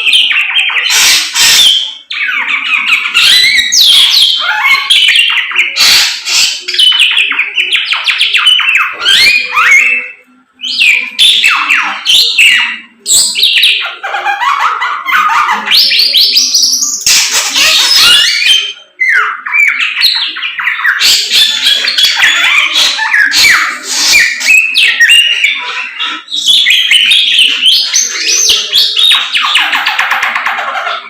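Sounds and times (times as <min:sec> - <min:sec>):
songbird singing: 0:00.0 - 0:14.0.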